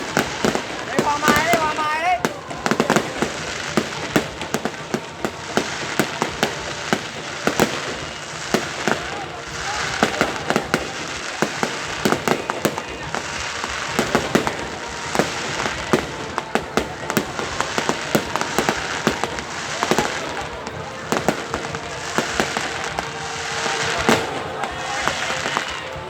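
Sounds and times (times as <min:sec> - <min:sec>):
firework shells banging: 0:00.0 - 0:26.0
fireworks crackling: 0:00.0 - 0:26.0.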